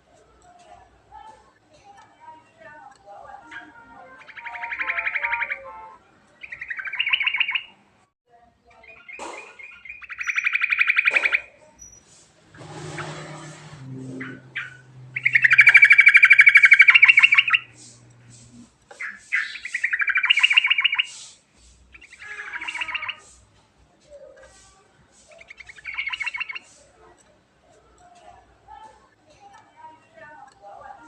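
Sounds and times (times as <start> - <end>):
bird singing trilled song: 2.9 - 7.8, 8.7 - 12.1, 12.7 - 18.2, 19.0 - 23.4, 25.3 - 26.8.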